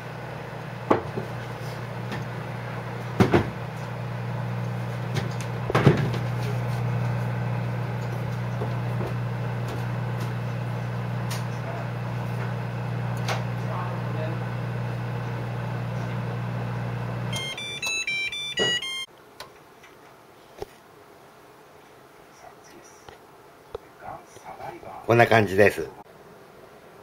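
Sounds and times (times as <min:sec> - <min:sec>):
microwave oven humming: 0:00.0 - 0:19.1.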